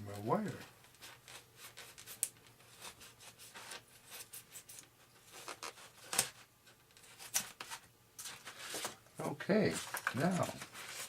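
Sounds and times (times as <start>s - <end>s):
foam scraping and rubbing: 9.6s - 11.0s.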